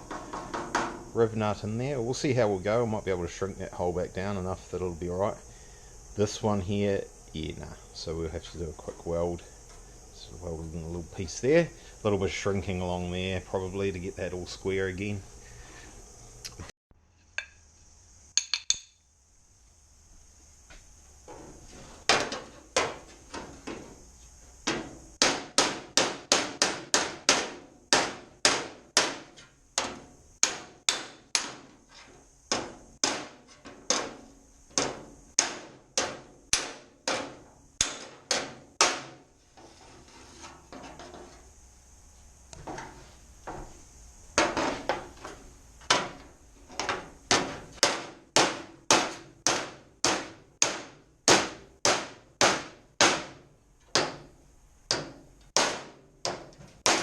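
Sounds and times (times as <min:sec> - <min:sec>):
hammer striking metal panel: 0:00.0 - 0:01.1, 0:24.7 - 0:39.2, 0:45.9 - 0:54.3, 0:54.9 - 0:57.0.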